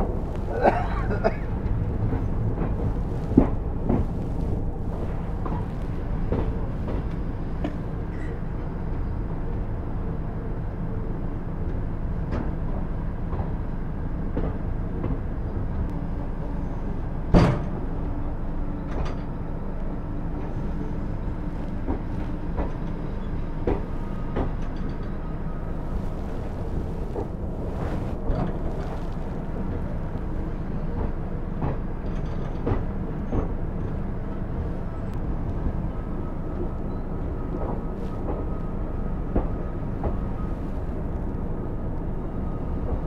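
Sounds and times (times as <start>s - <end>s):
train running rumble: 0.0s - 43.0s.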